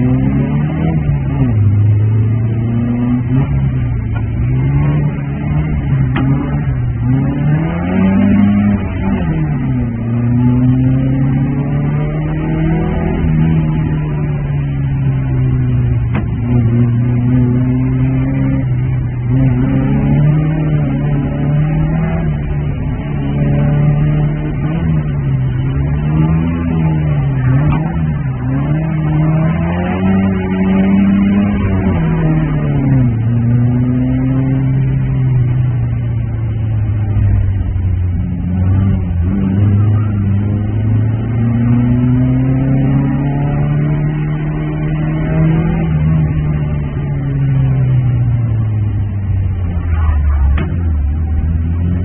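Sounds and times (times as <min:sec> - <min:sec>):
car engine from inside cabin: 0:00.0 - 0:52.0.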